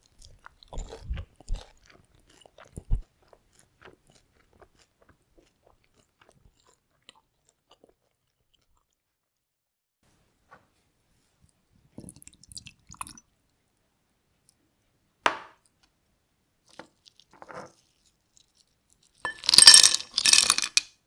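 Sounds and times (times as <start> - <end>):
tableware clattering: 19.3 - 20.8
tableware clicking and clinking: 19.3 - 20.8.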